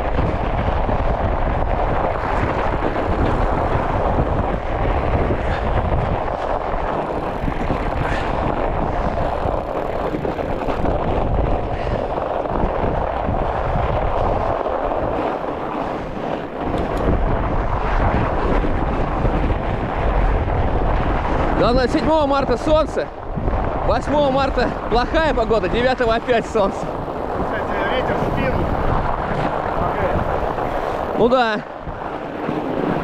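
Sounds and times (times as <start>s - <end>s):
bike rolling across snow: 0.0s - 33.0s
wind buffeting microphone: 0.0s - 33.0s.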